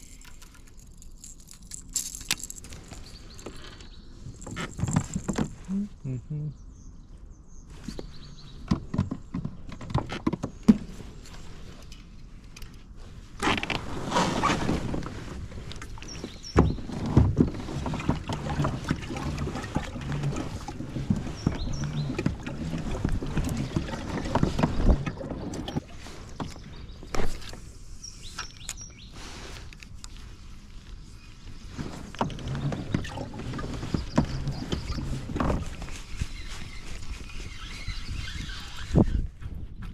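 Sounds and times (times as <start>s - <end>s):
water around a boat: 0.0s - 39.9s
gear knocking against kayak hull: 32.1s - 35.8s.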